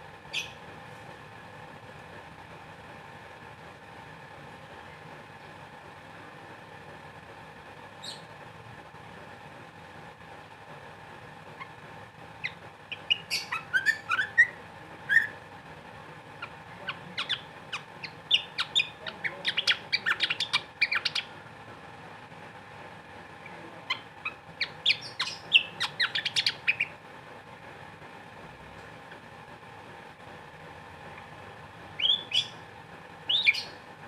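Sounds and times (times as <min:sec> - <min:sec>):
faint steady hum: 0:00.0 - 0:34.0
bird chirping and whistling: 0:00.3 - 0:00.6, 0:08.0 - 0:08.2, 0:12.4 - 0:15.3, 0:17.2 - 0:21.3, 0:24.6 - 0:26.9, 0:32.0 - 0:32.6, 0:33.3 - 0:33.8.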